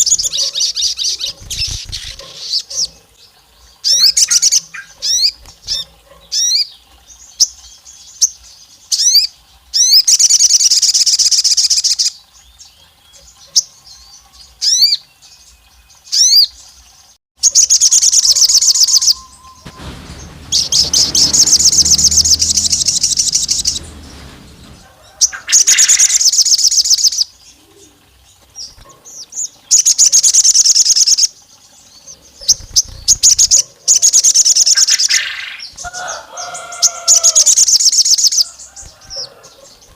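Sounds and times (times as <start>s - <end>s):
low rumbling noise: 18.0s - 26.4s.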